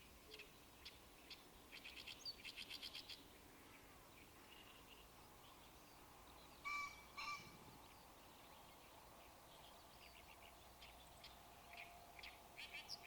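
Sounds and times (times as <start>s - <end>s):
faint small-bird chirps: 0.2s - 9.0s.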